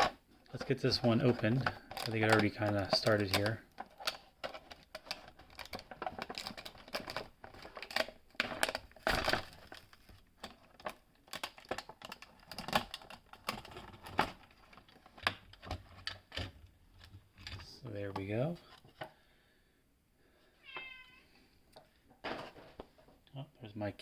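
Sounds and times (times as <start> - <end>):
plastic blister pack crinkling and tearing: 0.0 - 16.4.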